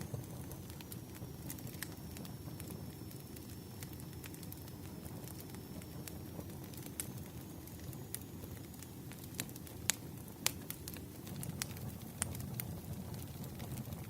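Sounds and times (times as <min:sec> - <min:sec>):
firewood crackling and popping: 0:00.0 - 0:14.0
rush of flames: 0:00.0 - 0:14.0.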